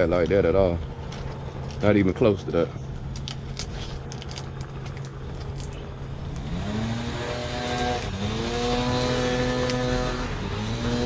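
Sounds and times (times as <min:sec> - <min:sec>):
low hum: 0:00.0 - 0:11.0
electric sander motor spinning: 0:04.5 - 0:11.0.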